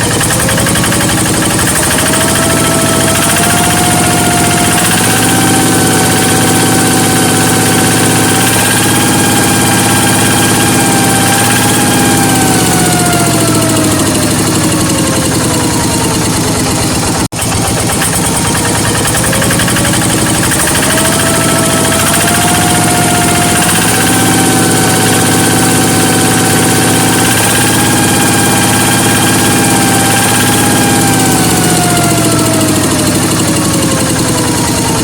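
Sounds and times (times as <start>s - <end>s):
diesel engine running: 0.0s - 35.0s
exhaust whistle: 0.0s - 35.0s.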